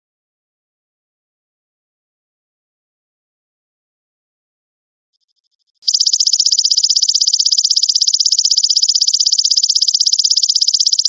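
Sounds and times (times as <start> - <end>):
grasshopper high-pitched trill: 5.9 - 11.0.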